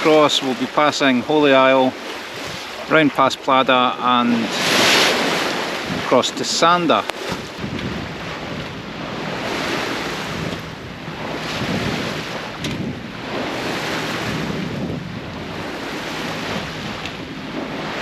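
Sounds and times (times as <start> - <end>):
sea water rushing past hull: 0.0 - 18.0
wind buffeting microphone: 1.9 - 3.0, 4.4 - 18.0.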